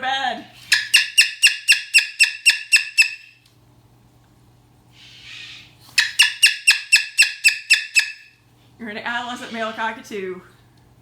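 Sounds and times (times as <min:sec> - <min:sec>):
cockatoo sharp calls: 0:00.7 - 0:03.4, 0:05.0 - 0:08.3
cockatoo hiss: 0:04.9 - 0:05.8.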